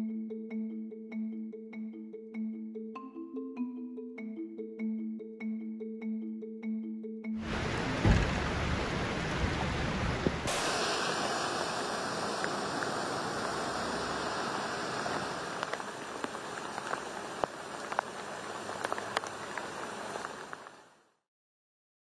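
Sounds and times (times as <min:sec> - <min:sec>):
water drips and splashes: 0:07.4 - 0:20.9
heavy rain and floodwater running: 0:07.4 - 0:21.0.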